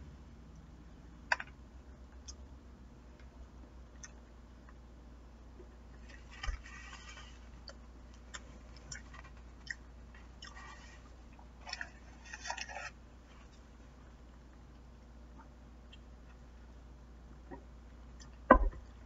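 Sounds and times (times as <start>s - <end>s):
low steady hum: 0.0s - 19.0s
person chewing food: 5.9s - 13.7s
thump: 18.5s - 18.8s.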